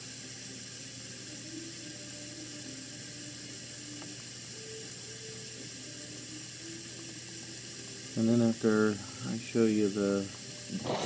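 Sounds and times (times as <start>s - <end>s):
water spraying in dishwasher: 7.3s - 11.0s.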